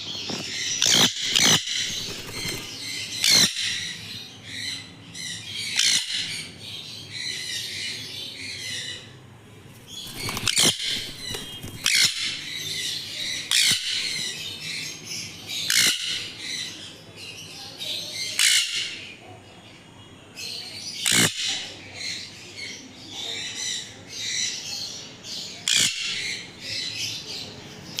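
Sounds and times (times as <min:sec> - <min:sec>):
baby parrots chirping: 0:00.6 - 0:04.0, 0:09.9 - 0:14.4
loud sharp squawks: 0:00.7 - 0:04.0, 0:10.0 - 0:14.4, 0:21.0 - 0:21.7.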